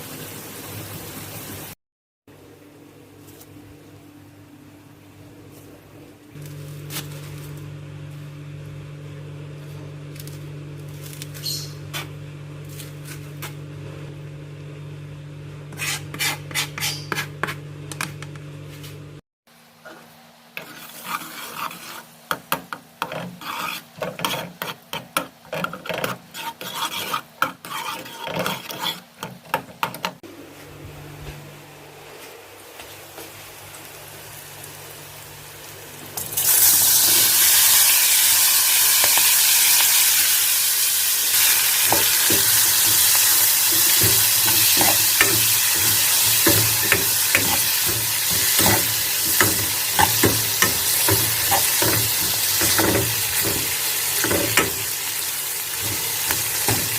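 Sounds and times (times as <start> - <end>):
spatula stirring and tapping: 20.6 - 30.2, 41.9 - 54.9, 55.8 - 56.9
food sizzling in hot oil: 33.8 - 56.9
kitchen utensils clicking: 41.9 - 54.8.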